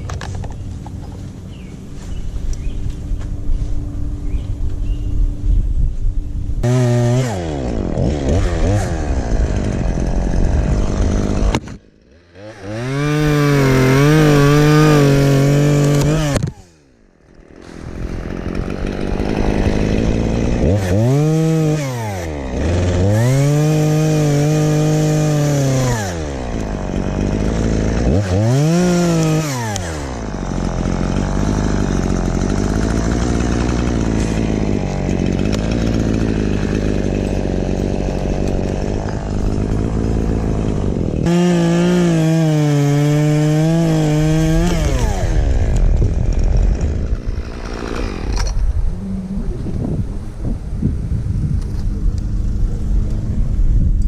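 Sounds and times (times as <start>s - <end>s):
chainsaw revving: 6.6s - 49.0s.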